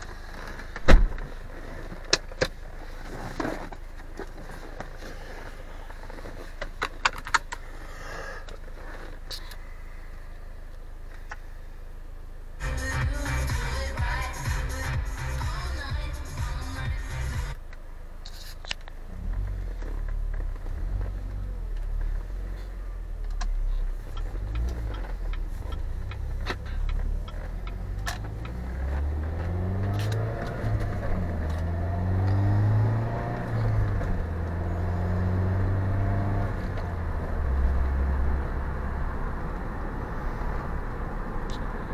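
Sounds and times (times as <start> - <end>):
road noise: 0.0 - 41.9
car engine accelerating: 12.6 - 17.8, 18.9 - 41.9.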